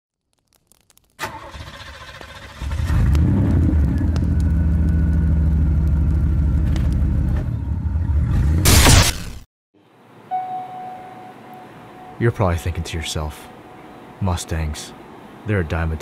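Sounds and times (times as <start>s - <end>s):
car engine starting and droning: 1.2s - 8.7s.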